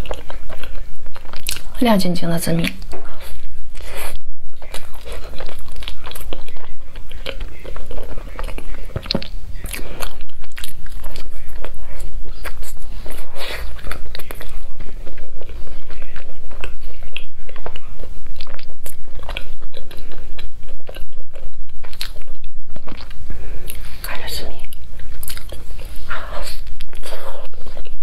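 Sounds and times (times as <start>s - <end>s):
person chewing soft bread: 0.0s - 1.9s, 2.6s - 28.0s.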